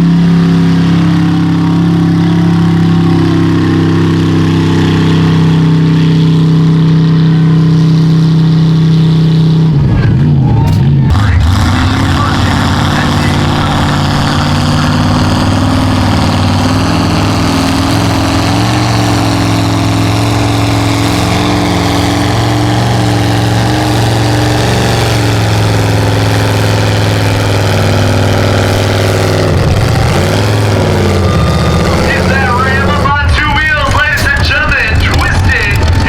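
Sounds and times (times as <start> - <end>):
truck engine running: 0.0 - 36.0.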